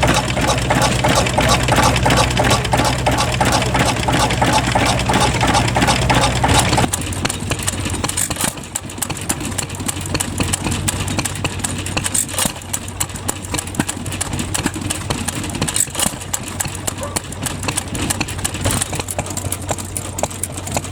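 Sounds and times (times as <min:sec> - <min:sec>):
engine humming: 0:00.0 - 0:12.0
engine clattering with sharp clicks: 0:00.0 - 0:20.9.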